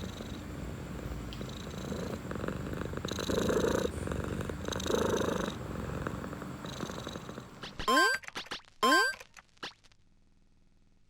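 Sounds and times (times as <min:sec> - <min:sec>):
cat purring: 0:00.0 - 0:07.6.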